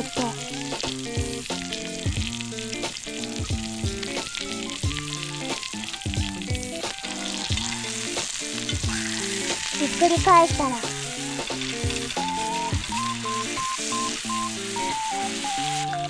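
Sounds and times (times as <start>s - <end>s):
background music with a beat: 0.0s - 16.0s
steak sizzling in a pan: 0.0s - 16.0s.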